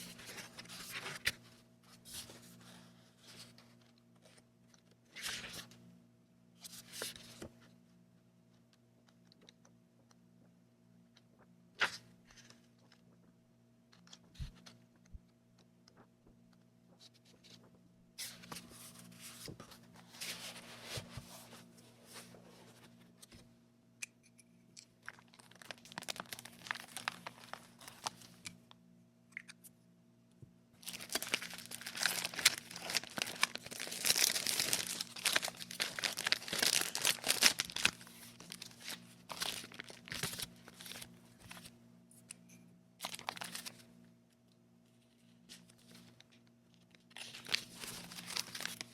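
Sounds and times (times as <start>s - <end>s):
packaging crinkling and tearing: 25.0s - 28.4s, 30.8s - 41.7s, 43.0s - 43.8s, 47.0s - 48.9s.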